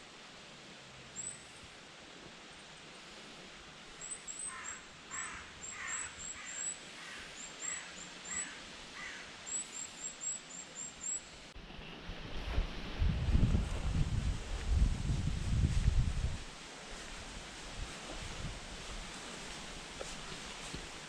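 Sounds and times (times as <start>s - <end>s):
steady background hiss: 0.0s - 21.0s
harsh caw-like bird calls: 4.4s - 9.4s.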